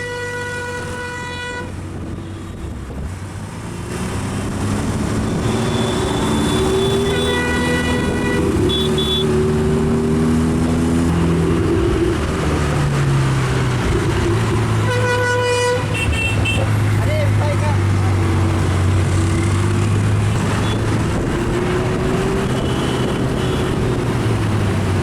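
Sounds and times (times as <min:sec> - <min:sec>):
car horns honking: 0:00.0 - 0:02.5, 0:05.2 - 0:09.4, 0:14.6 - 0:17.0, 0:20.4 - 0:21.0, 0:22.4 - 0:24.1
vehicle engines pulling away: 0:03.4 - 0:07.8, 0:08.5 - 0:14.9, 0:16.6 - 0:25.0.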